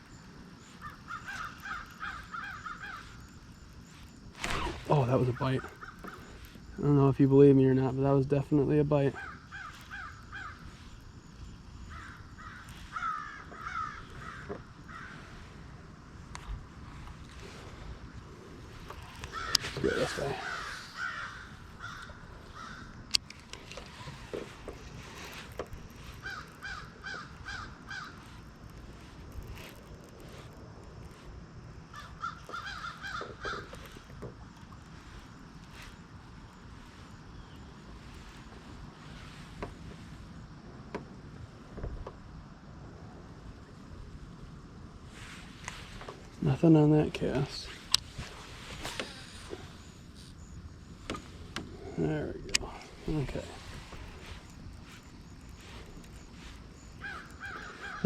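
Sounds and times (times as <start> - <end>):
bird calling: 0.0 - 8.0, 8.6 - 15.6, 17.4 - 29.7, 31.8 - 40.4, 47.2 - 58.0
crow cawing: 0.7 - 3.4, 9.2 - 10.9, 11.9 - 15.3, 19.2 - 23.0, 26.1 - 28.3, 31.9 - 34.0, 56.8 - 58.0.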